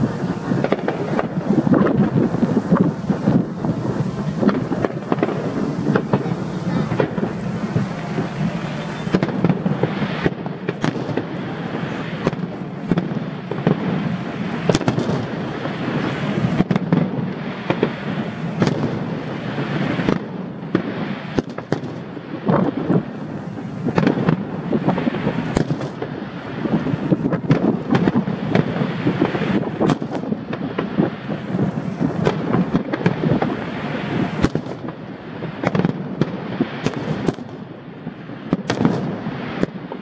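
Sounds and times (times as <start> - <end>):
fireworks bangs and crackling: 0.0 - 40.0.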